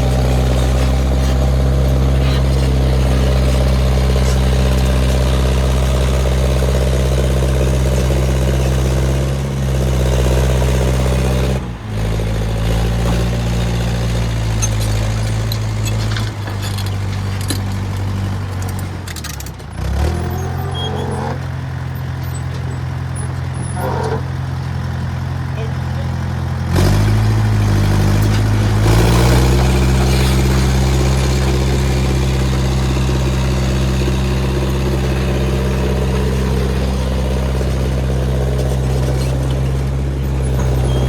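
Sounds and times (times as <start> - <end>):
large engine running: 0.0 - 41.0
light metallic clatter: 14.4 - 24.8.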